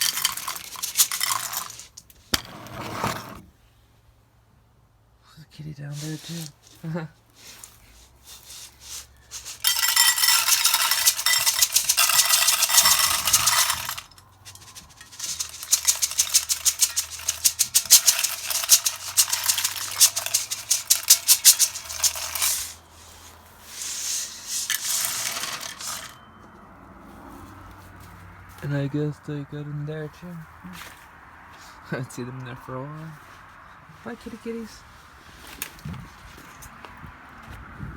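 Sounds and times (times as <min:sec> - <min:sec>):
cats eating from food dish: 0:00.0 - 0:02.4, 0:06.0 - 0:26.0.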